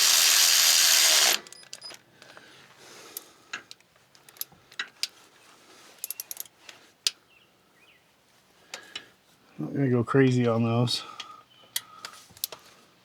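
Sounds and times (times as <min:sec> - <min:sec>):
ratchet clicking on bolts: 0:00.0 - 0:01.9.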